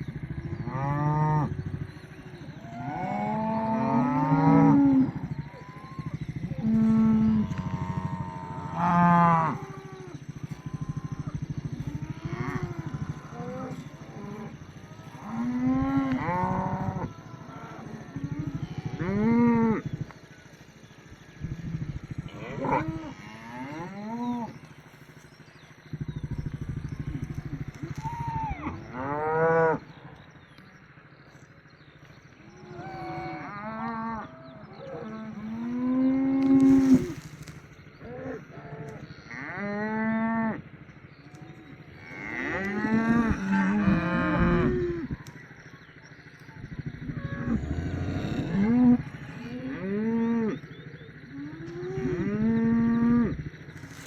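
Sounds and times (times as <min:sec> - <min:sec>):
cattle mooing: 0:00.1 - 0:19.9, 0:22.3 - 0:24.6, 0:38.1 - 0:40.6, 0:42.0 - 0:45.1, 0:47.0 - 0:50.6.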